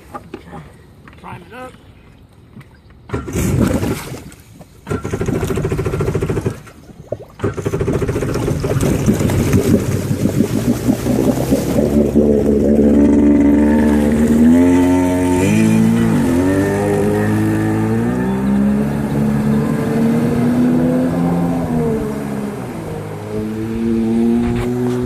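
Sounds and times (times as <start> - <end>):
motorcycle engine running and revving: 9.3 - 22.1, 23.3 - 25.0.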